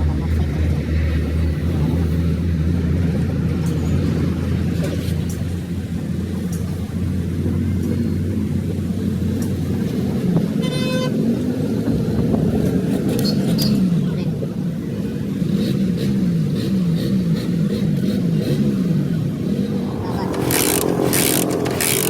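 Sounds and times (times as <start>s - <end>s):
vehicle engine humming: 0.0s - 13.2s, 13.9s - 22.0s
traffic noise: 0.0s - 22.0s
car horn honk: 10.6s - 11.1s.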